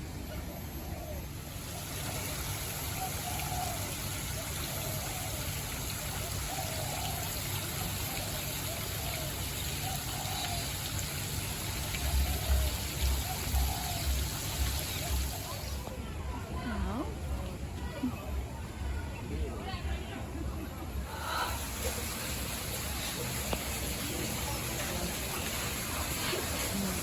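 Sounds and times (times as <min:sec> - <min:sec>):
running water splashing: 0:01.6 - 0:16.0, 0:21.1 - 0:27.0.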